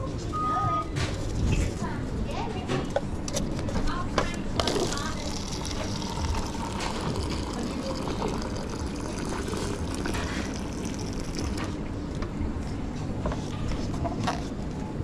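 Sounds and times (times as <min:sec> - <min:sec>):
cafe background noise: 0:00.0 - 0:15.0
espresso machine liquid running: 0:04.6 - 0:11.9.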